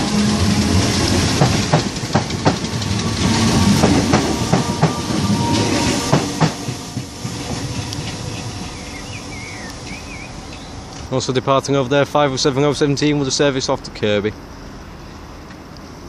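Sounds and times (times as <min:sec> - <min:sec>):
wheels clacking over rail joints: 0:00.0 - 0:11.8
train rumble: 0:00.0 - 0:16.0.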